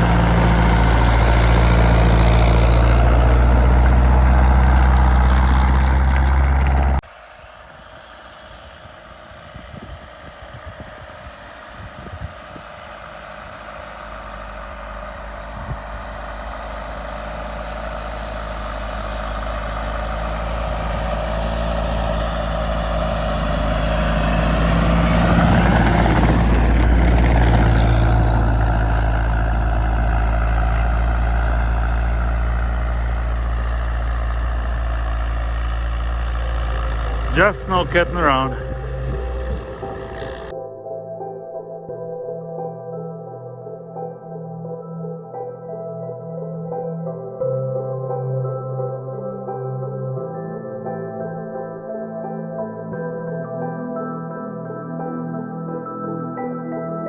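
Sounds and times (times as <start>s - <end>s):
diesel engine running: 0.0s - 40.5s.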